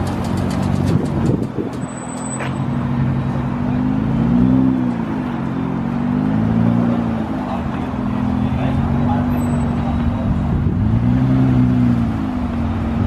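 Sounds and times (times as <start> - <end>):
car engine running: 0.0 - 3.7.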